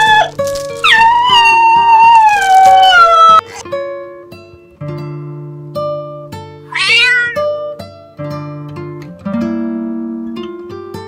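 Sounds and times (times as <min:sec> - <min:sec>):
cat meowing: 0:00.0 - 0:03.6, 0:06.7 - 0:07.6
plucked-string background music: 0:00.0 - 0:11.0.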